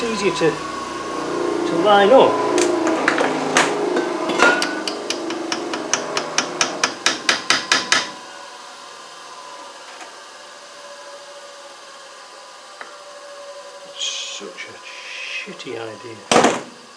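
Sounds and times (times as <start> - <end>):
hammer striking a metal punch: 4.3 - 8.2.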